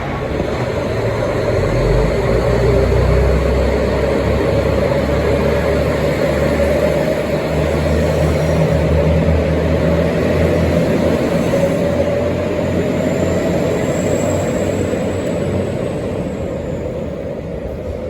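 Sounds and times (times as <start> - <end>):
diesel railcar engine rumble: 0.0 - 18.0.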